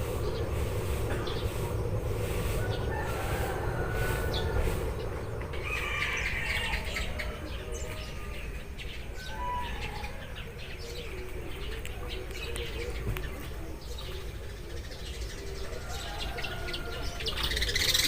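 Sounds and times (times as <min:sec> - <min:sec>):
steady low rumble: 0:00.0 - 0:08.0
sparrows chirping: 0:00.0 - 0:18.0.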